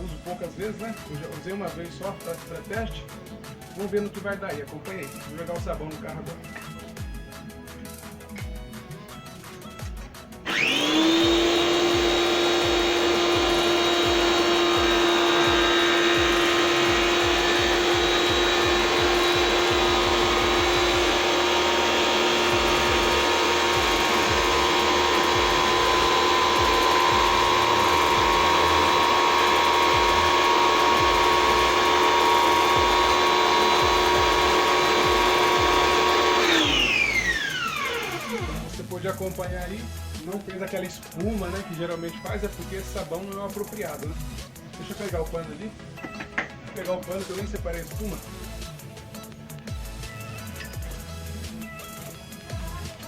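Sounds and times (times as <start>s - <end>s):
pressure washer motor whine: 10.5s - 39.4s.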